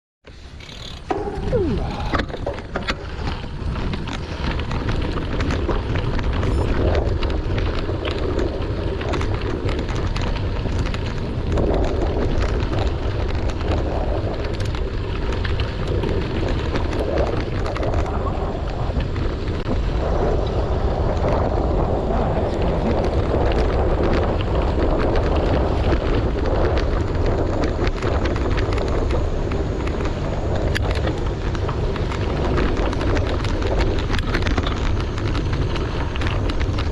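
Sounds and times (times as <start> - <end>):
bicycle tyres on gravel: 0.3 - 36.9
wind buffeting microphone: 0.3 - 36.9.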